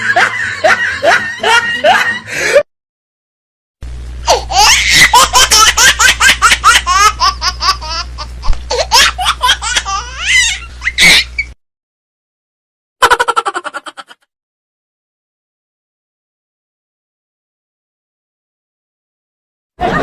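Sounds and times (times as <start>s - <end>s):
hearty laughter: 0.0s - 2.6s
low steady hum: 3.8s - 11.6s.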